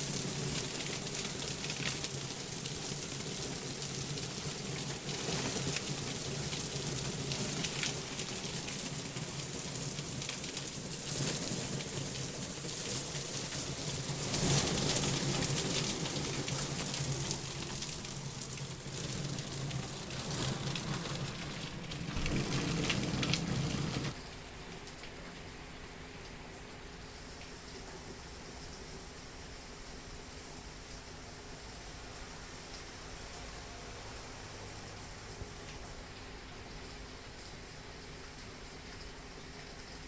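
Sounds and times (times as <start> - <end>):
heavy rain pouring: 0.0 - 26.8.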